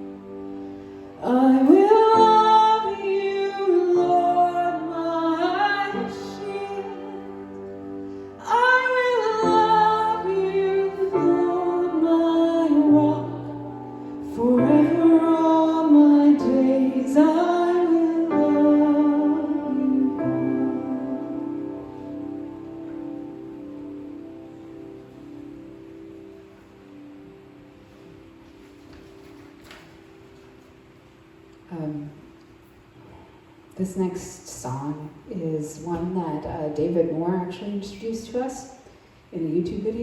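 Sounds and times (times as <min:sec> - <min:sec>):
sustained accompanying chords: 0:00.0 - 0:33.8
woman singing slow song: 0:01.2 - 0:23.2.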